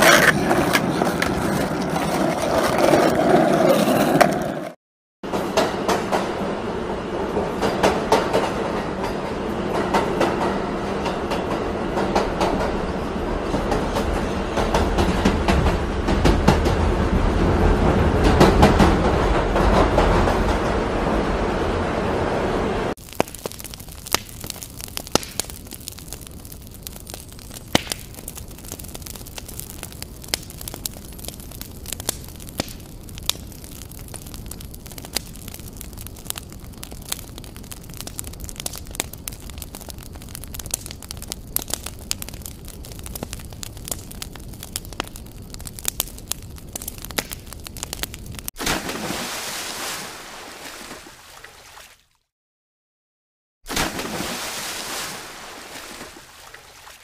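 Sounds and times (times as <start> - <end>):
subway train rumbling on rails: 5.3 - 22.9
bonfire crackling and popping: 22.9 - 50.0, 53.7 - 57.0.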